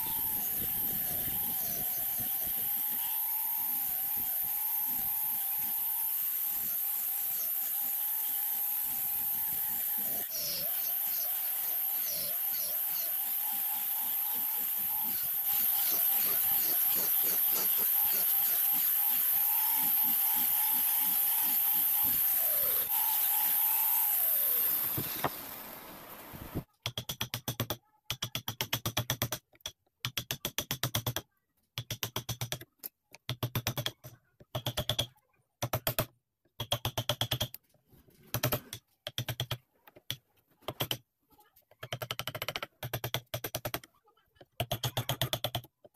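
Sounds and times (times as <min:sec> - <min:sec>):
angle grinder sanding wood: 0:00.0 - 0:25.7.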